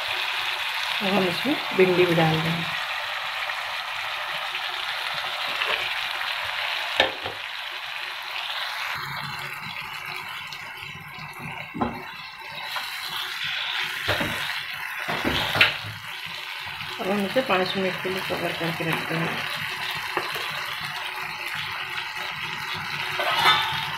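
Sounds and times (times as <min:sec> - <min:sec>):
vegetables sizzling in a frying pan: 0:00.0 - 0:23.9
spatula scraping a pan: 0:23.0 - 0:23.9.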